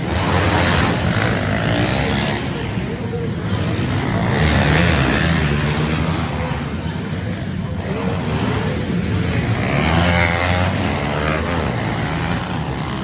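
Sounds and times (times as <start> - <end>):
pit bike engines revving: 0.0 - 13.0.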